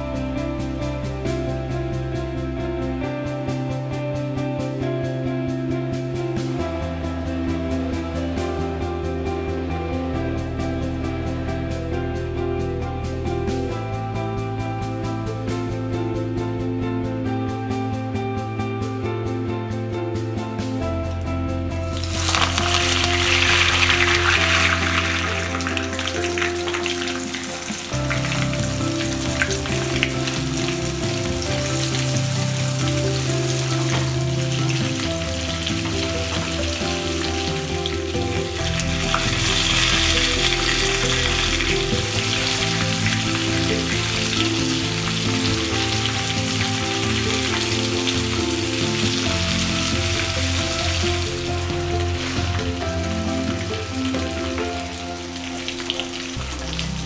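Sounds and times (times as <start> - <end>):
background music with held notes: 0.0 - 57.0
prawns sizzling in oil: 21.9 - 57.0.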